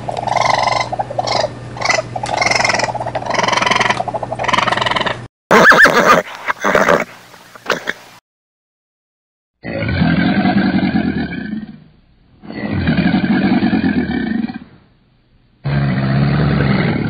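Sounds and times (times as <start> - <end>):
crocodile bellowing: 0.0 - 6.0, 9.6 - 14.8, 15.6 - 17.0.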